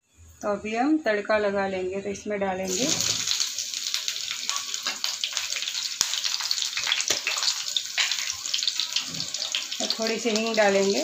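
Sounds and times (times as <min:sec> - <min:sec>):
food sizzling in hot oil: 0:02.6 - 0:11.0.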